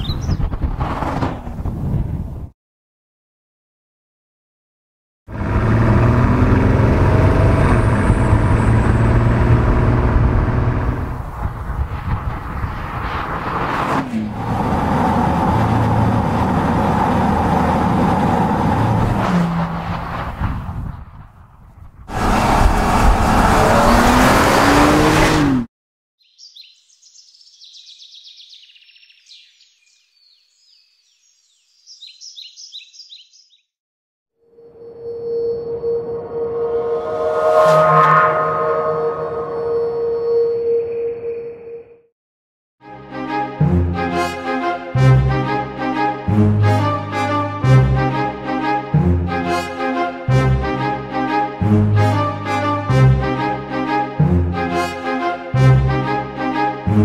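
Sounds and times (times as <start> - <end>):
small birds singing: 0.0 - 0.5, 26.2 - 33.7
car engine cruising: 5.3 - 20.7, 22.1 - 25.7, 36.3 - 40.1.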